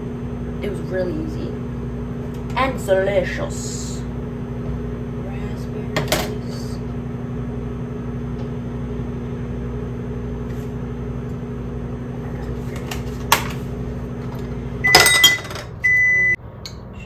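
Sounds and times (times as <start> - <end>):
microwave oven humming: 0.0 - 17.0
microwave click: 5.9 - 16.3.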